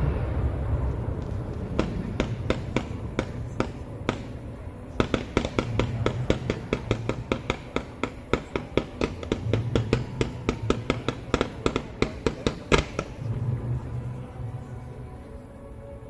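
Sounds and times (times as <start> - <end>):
low rumble: 0.0 - 5.0, 13.2 - 15.8.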